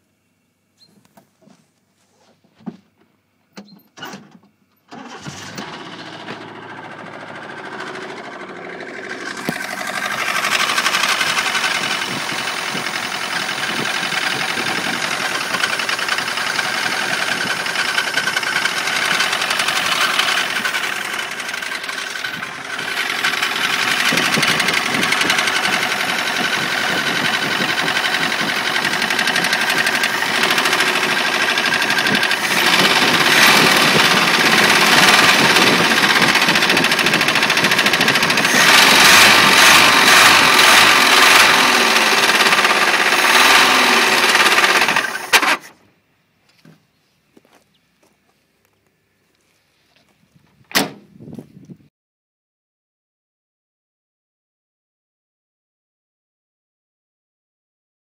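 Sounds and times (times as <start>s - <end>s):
car engine knocking rapidly: 5.9s - 45.6s.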